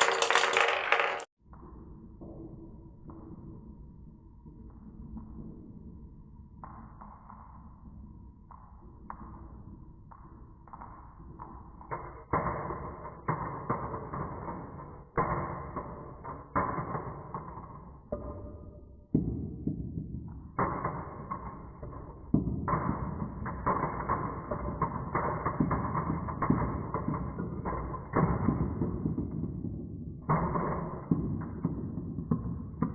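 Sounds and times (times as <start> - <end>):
marbles knocking: 0.0 - 1.3, 11.6 - 32.9
marbles rolling on wooden run: 0.0 - 1.3, 11.7 - 18.8, 20.6 - 32.9.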